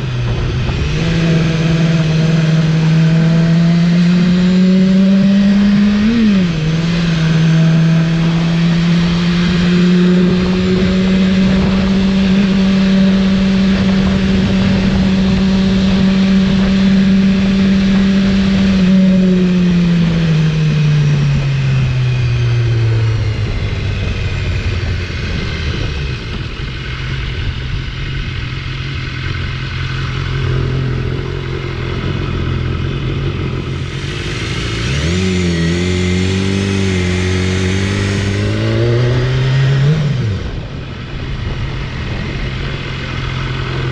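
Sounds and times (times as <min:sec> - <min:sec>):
motorcycle engine running: 0:00.0 - 0:43.9
wind noise: 0:00.0 - 0:43.9.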